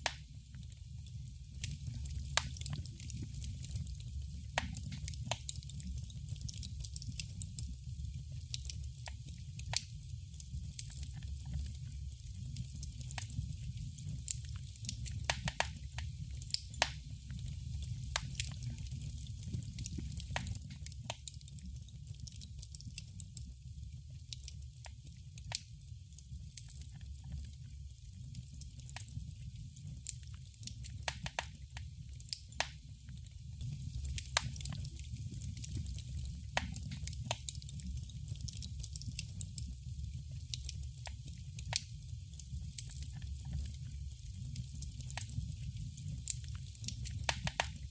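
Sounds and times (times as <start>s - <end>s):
fireplace fire crackling: 0.0s - 47.9s.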